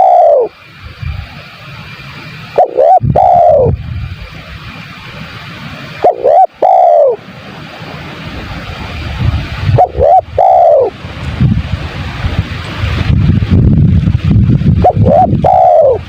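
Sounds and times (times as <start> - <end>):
dove cooing: 0.0 - 0.6, 2.6 - 3.8, 6.0 - 7.2, 9.7 - 11.0, 14.8 - 16.0
steady hiss and low rumble: 0.0 - 16.0.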